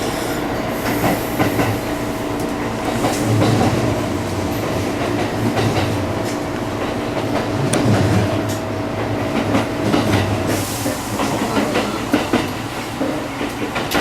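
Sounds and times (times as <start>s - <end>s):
train wheels clicking over rail joints: 0.0s - 14.0s
train motor whine: 0.1s - 10.8s.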